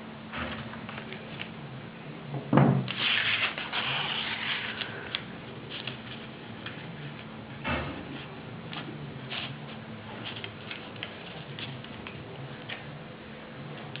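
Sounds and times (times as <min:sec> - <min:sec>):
faint steady hum: 0:00.0 - 0:14.0
thump: 0:02.5 - 0:02.9
paper rustling and rubbing: 0:02.9 - 0:06.9, 0:08.1 - 0:12.0.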